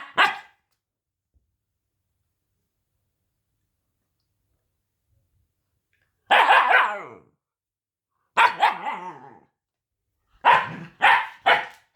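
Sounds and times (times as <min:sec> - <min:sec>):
puppy barking: 0:00.0 - 0:00.6, 0:06.3 - 0:07.2, 0:08.4 - 0:09.3, 0:10.4 - 0:11.9.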